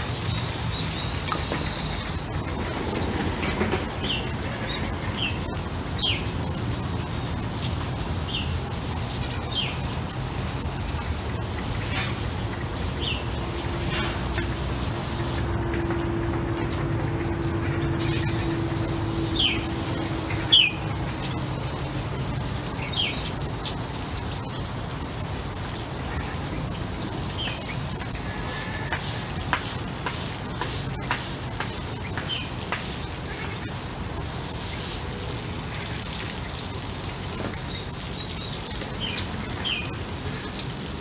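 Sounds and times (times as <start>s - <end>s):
birds chirping: 0.0s - 6.6s, 17.2s - 24.8s, 30.5s - 32.6s.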